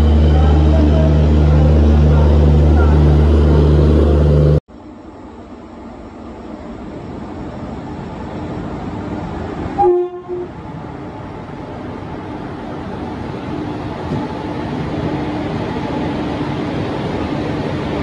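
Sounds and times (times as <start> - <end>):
train rumbling: 0.0 - 18.0
train horn blast: 9.8 - 10.5.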